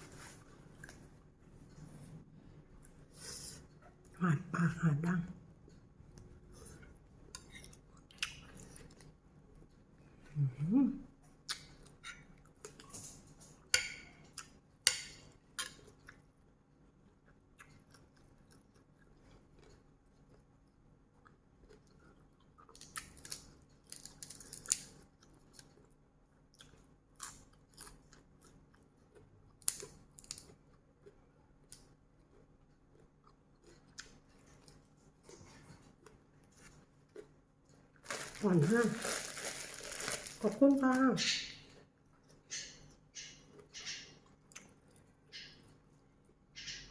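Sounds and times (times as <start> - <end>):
person chewing crunchy food: 5.6 - 9.2, 17.0 - 40.5.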